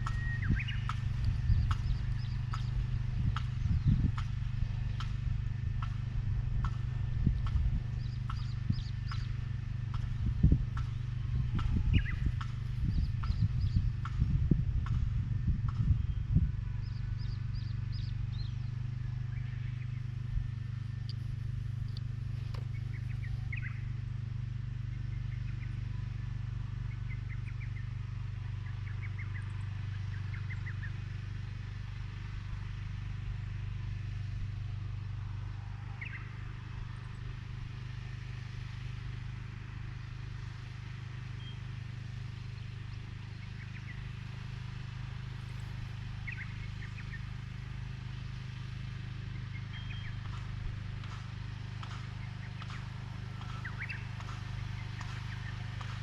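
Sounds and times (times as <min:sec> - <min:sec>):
birds chirping: 0:00.0 - 0:04.3, 0:07.3 - 0:13.9, 0:16.8 - 0:24.0, 0:40.0 - 0:56.0
machine engine running: 0:00.0 - 0:25.4, 0:33.0 - 0:56.0.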